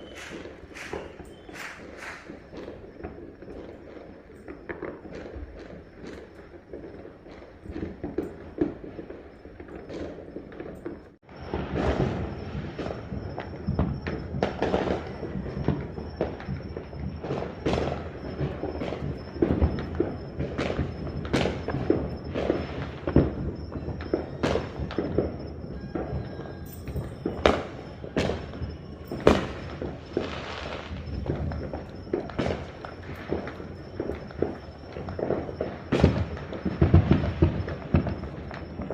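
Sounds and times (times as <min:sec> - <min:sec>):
fireworks and firecrackers popping: 0:00.0 - 0:38.9.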